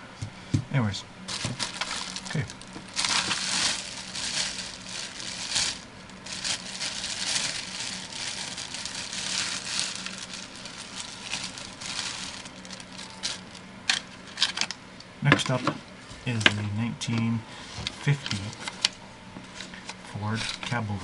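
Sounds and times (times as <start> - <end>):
faint steady hum: 0.0 - 21.0
packaging crinkling and rustling: 1.3 - 14.7.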